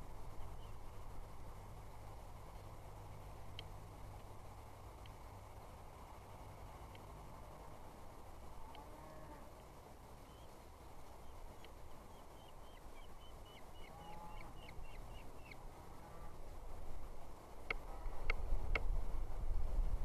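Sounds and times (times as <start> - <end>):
small bird chirping: 10.2 - 10.6, 11.2 - 15.6.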